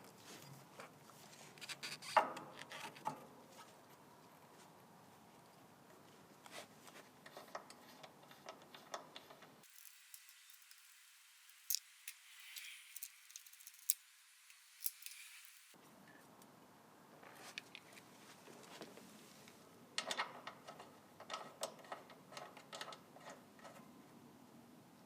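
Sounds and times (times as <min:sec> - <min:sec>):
small hard objects clicking: 0:09.6 - 0:15.8.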